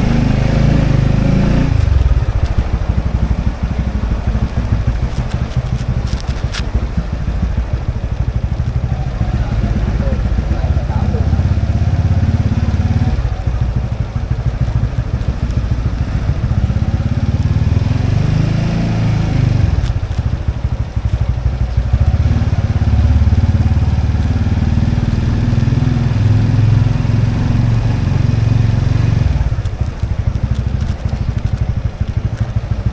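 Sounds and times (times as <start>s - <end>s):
motorbike engine running: 0.0s - 32.9s.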